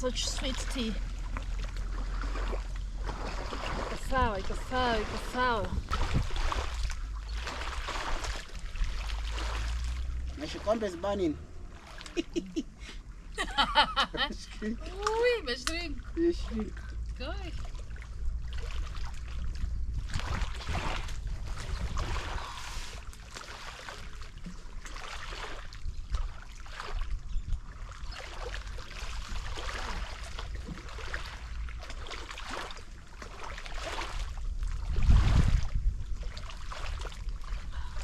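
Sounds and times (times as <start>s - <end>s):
wind rumble on microphone: 0.0s - 10.6s, 14.2s - 32.0s, 32.6s - 38.0s
water lapping at the shore: 0.0s - 38.0s.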